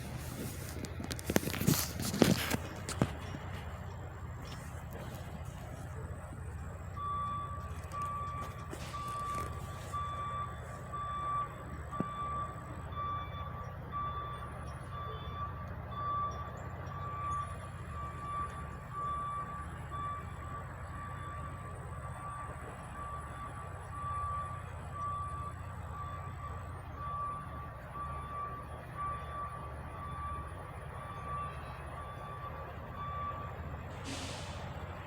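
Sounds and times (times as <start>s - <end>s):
truck engine rumble: 0.0s - 35.0s
truck reversing alarm beeping: 0.0s - 35.0s.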